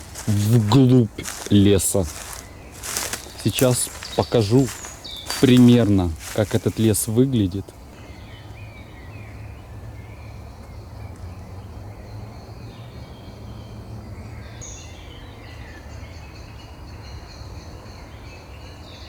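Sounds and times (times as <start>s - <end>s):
high bird chirp: 0.0s - 8.5s
bird chirps and calls: 0.0s - 8.6s.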